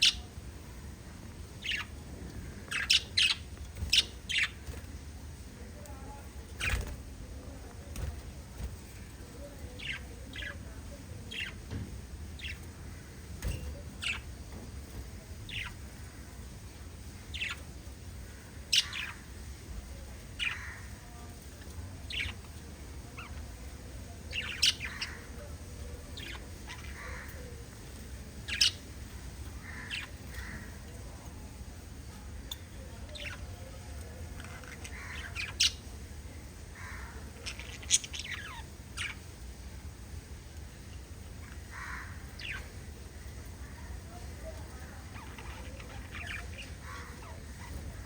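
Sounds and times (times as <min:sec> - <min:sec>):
steady low hum: 0:00.0 - 0:48.0
budgerigars chirping: 0:02.6 - 0:04.7.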